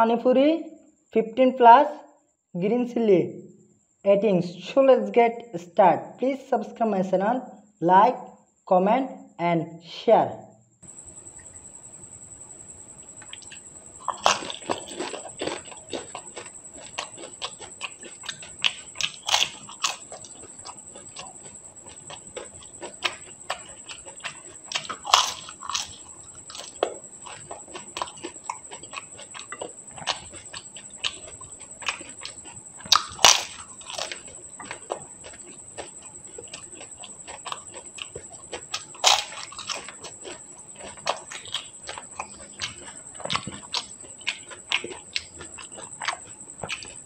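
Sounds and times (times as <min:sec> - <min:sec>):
crunching and chewing crisp shells: 0:10.9 - 0:47.0.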